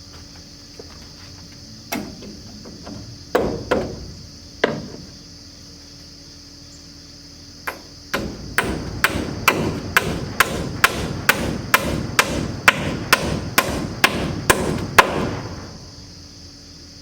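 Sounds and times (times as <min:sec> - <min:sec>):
hammer pounding on wood: 0:02.0 - 0:05.2, 0:07.7 - 0:15.9.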